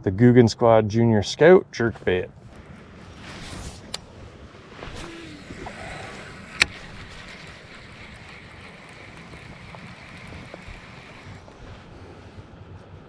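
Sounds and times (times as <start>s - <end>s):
sharp click: 4.9s - 11.6s.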